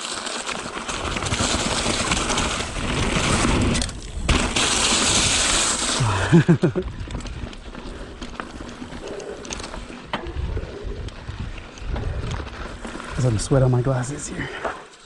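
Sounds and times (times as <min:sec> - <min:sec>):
bike knocks and rattles: 0:00.0 - 0:05.8
bike tyres on dirt trail: 0:00.0 - 0:15.0.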